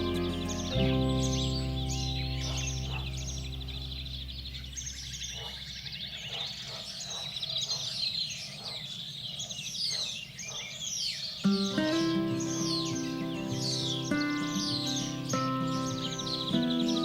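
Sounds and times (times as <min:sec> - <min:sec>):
background music: 0:00.0 - 0:04.4, 0:11.5 - 0:17.0
songbirds chirping: 0:00.0 - 0:17.0.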